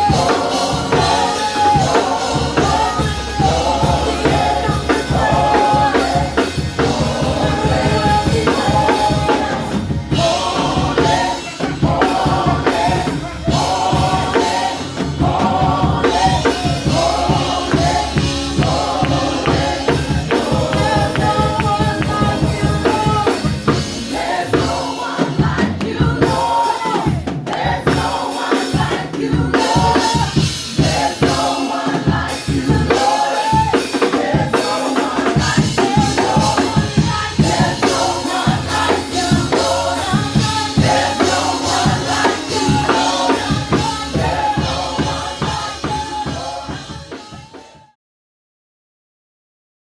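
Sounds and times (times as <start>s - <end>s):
voices singing: 0.0s - 47.8s
band with steady drum beat: 0.0s - 48.0s.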